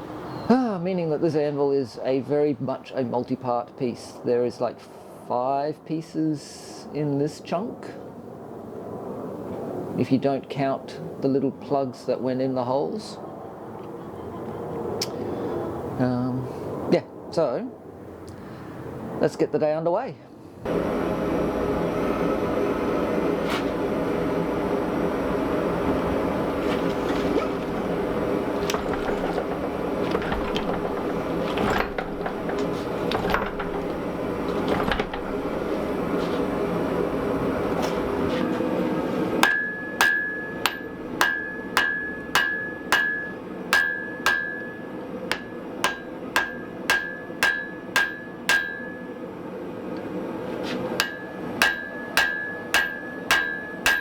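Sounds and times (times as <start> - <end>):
scattered knocks: 26.8 - 36.3, 39.4 - 49.0
hammer striking iron on anvil: 28.7 - 35.8, 39.4 - 49.2, 51.0 - 54.0.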